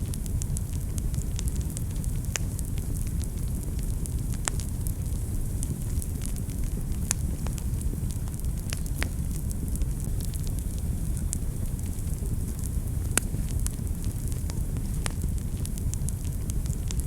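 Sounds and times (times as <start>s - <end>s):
fire crackles and pops: 0.0s - 17.0s
fire flames rumbling: 0.0s - 17.0s.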